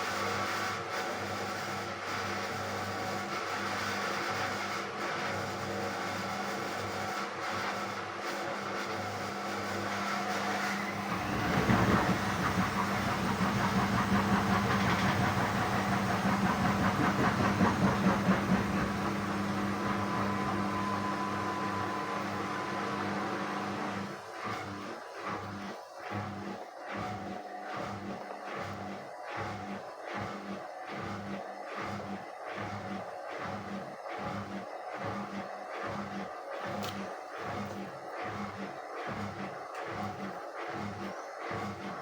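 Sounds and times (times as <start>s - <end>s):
washing machine motor humming: 9.3s - 29.7s
water churning in drum: 10.8s - 42.0s.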